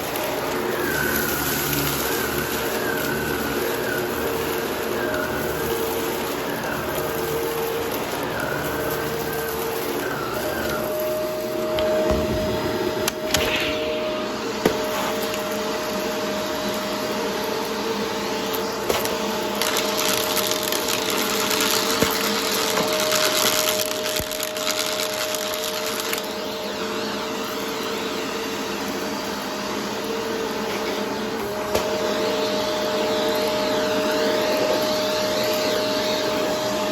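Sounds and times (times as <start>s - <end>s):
debris crackling in vacuum: 0.0s - 29.4s
vacuum cleaner motor whine: 0.0s - 36.9s.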